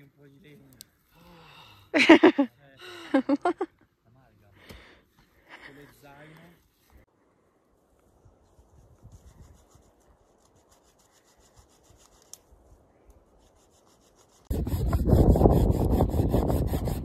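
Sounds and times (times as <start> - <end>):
loud rasping on wood: 13.9 - 17.0.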